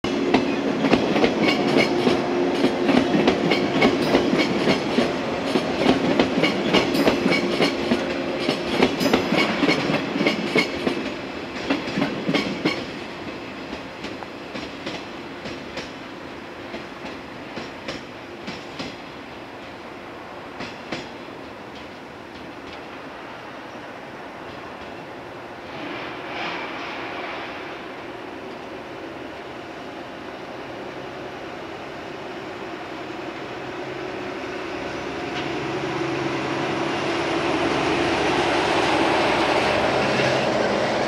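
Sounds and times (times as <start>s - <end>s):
train hum: 0.0s - 41.0s
train wheels clicking over rail joints: 0.3s - 19.8s, 20.5s - 23.0s, 24.4s - 28.7s.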